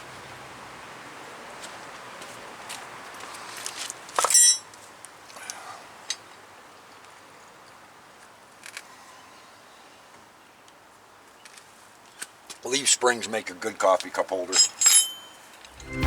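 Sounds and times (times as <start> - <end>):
hard ringing clink: 4.2 - 4.7, 14.6 - 15.5.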